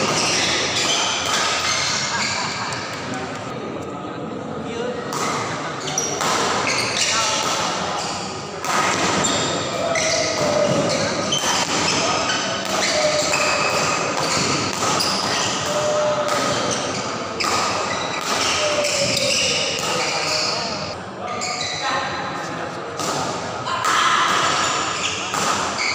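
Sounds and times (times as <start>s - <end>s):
rackets hitting shuttlecock: 0.0s - 3.1s, 8.6s - 20.6s, 23.0s - 25.9s
shoes squeaking on court: 0.0s - 3.5s, 9.1s - 21.8s, 24.6s - 25.9s
spectators chattering: 0.0s - 25.9s.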